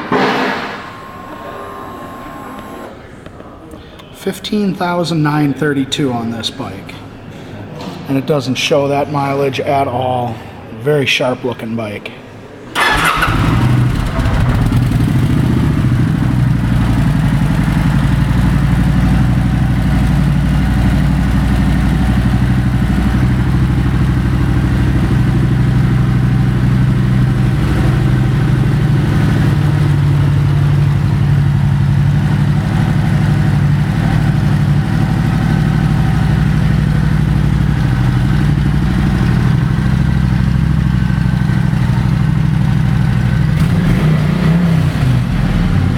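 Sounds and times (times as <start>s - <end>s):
motorcycle engine starting and idling: 0.0s - 3.0s, 12.8s - 45.9s.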